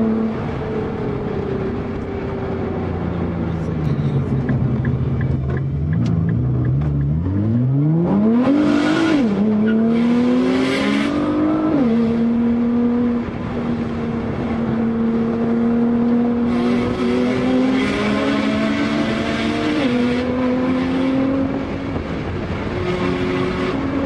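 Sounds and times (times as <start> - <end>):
car engine revving through upshifts: 2.7 - 24.0.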